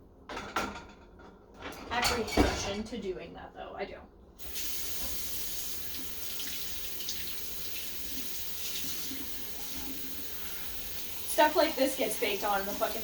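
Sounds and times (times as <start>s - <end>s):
tap water running: 4.4s - 13.0s.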